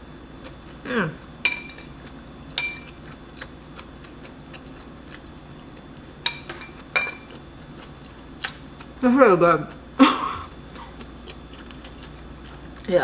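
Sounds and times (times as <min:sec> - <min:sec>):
fork clinking against ceramic bowl: 0:01.4 - 0:01.9, 0:02.6 - 0:03.0, 0:06.2 - 0:07.3.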